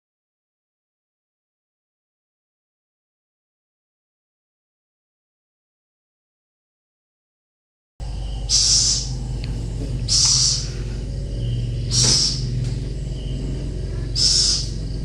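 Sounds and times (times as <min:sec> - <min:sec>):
owl hissing: 0:08.0 - 0:15.0
steady low hum: 0:08.0 - 0:15.0.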